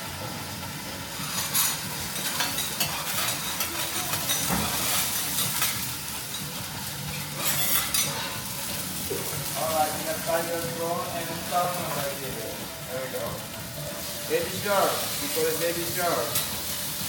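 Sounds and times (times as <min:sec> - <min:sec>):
vegetables sizzling in oil: 0:00.0 - 0:17.0
metal spatulas scraping griddle: 0:01.2 - 0:06.5, 0:07.1 - 0:08.6.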